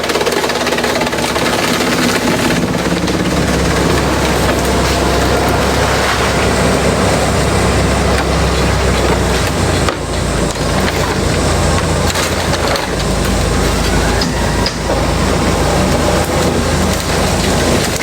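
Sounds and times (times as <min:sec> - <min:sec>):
shredder engine drone: 0:00.0 - 0:18.0
bamboo cracking and splintering: 0:07.8 - 0:18.0.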